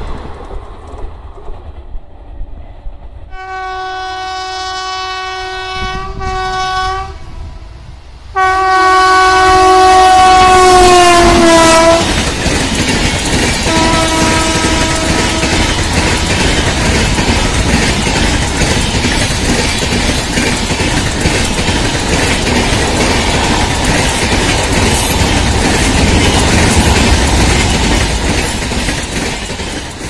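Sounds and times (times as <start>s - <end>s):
train rushing past: 0.0s - 30.0s
train horn chord: 3.3s - 12.2s, 13.7s - 15.8s.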